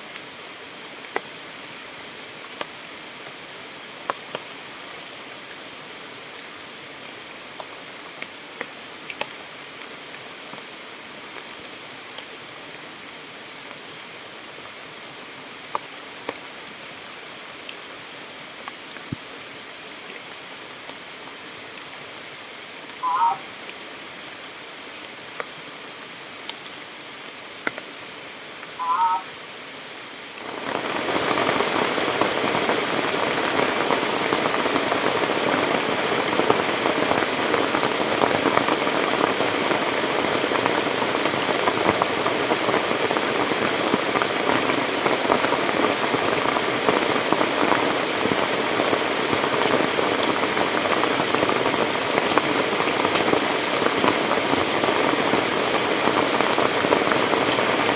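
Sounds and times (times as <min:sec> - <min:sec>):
rushing water: 0:00.0 - 0:57.9
rain hissing: 0:13.3 - 0:57.9
short warbling calls: 0:23.0 - 0:23.5, 0:28.8 - 0:29.4.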